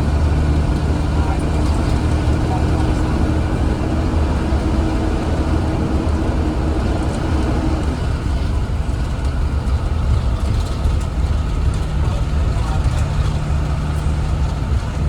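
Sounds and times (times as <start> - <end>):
bus engine rumble: 0.0 - 15.0
road noise: 0.0 - 15.0.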